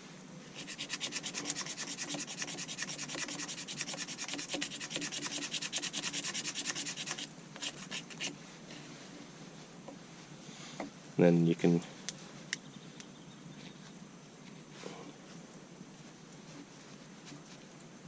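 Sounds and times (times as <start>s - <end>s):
knife scraping wood: 0.5s - 8.4s.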